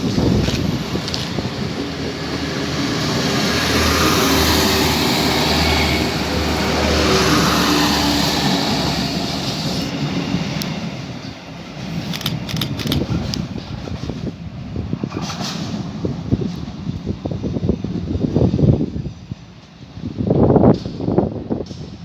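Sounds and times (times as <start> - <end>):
train rushing past: 0.0 - 22.0
sharp clicks and knocks: 12.0 - 13.4.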